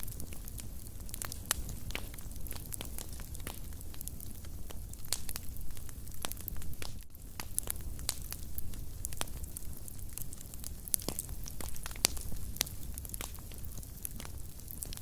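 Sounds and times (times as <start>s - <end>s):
fire crackling and popping: 0.0s - 15.0s
low rumble of flames: 0.0s - 15.0s.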